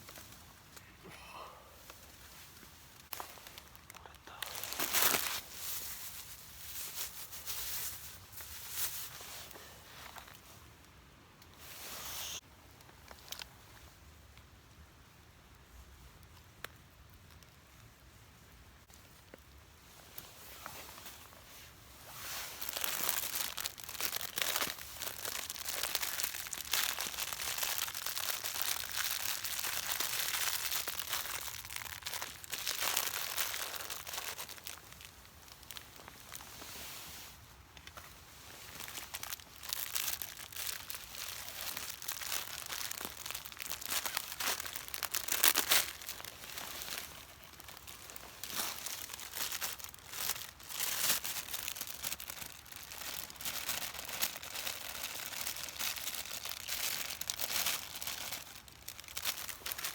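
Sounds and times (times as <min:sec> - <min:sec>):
crinkling and rustling handling noise: 0:00.0 - 0:14.6, 0:15.5 - 0:59.9
sharp crackles: 0:38.7 - 0:59.9.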